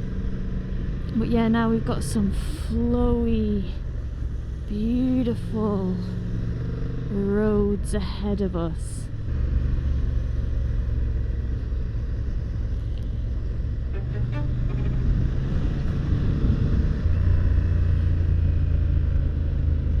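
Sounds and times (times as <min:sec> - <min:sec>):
wind noise on microphone: 0:13.8 - 0:17.8.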